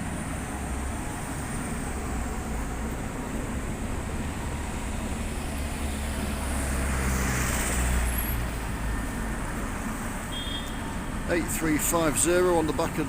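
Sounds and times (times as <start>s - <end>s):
heavy vehicle passing: 0.0s - 10.3s
street traffic: 0.0s - 13.0s.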